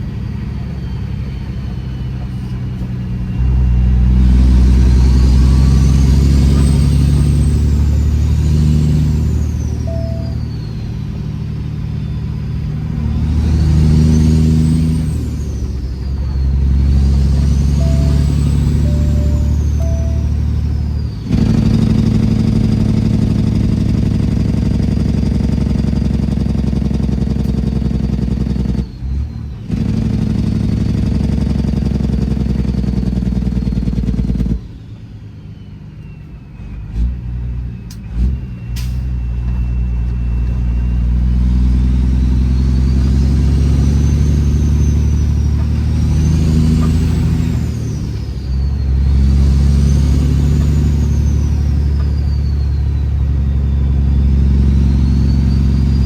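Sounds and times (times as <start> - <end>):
loud diesel truck engine: 0.0 - 56.0
turbo whistle: 0.6 - 23.2, 35.4 - 56.0.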